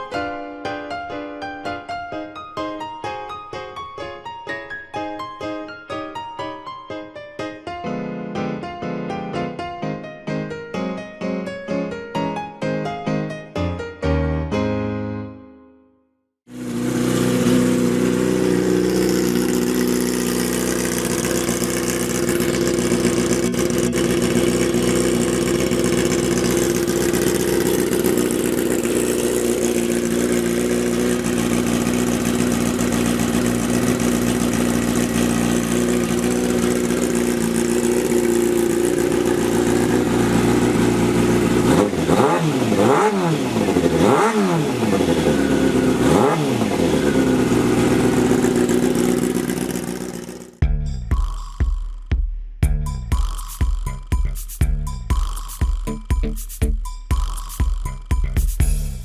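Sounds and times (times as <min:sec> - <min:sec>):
motorcycle engine idling and revving: 0:16.5 - 0:52.2.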